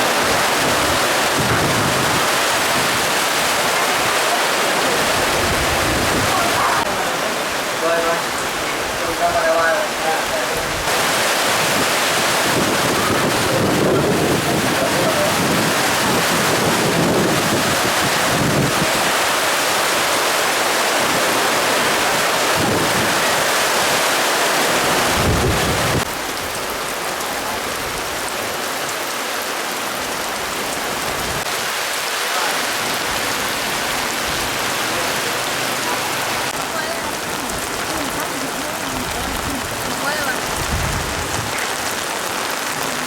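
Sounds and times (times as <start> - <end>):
wind gusts rumbling on microphone: 0.0 - 7.2, 10.2 - 20.2, 21.0 - 28.6, 36.2 - 43.0
heavy rain pouring: 0.0 - 43.0.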